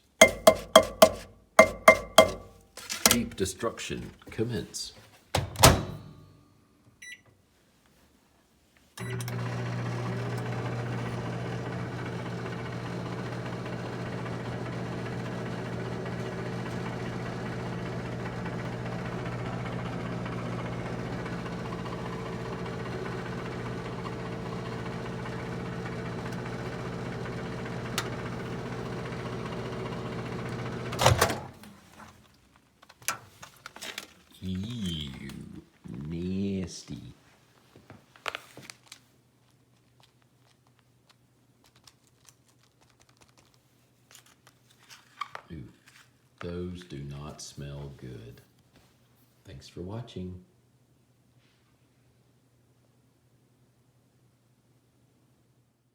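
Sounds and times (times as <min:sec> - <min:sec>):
microwave oven clunk: 0:00.2 - 0:02.5, 0:05.4 - 0:06.2, 0:09.0 - 0:31.7
microwave oven humming: 0:00.2 - 0:03.3, 0:09.0 - 0:31.8
faint keypad beeps: 0:07.0 - 0:07.3.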